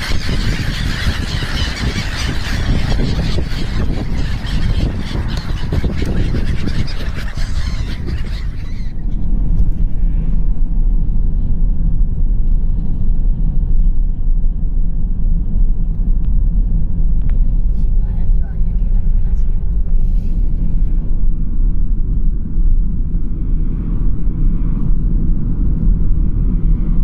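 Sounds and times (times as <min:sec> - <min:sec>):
birds calling and squawking: 0:00.0 - 0:09.3
steady low rumble: 0:00.0 - 0:27.0.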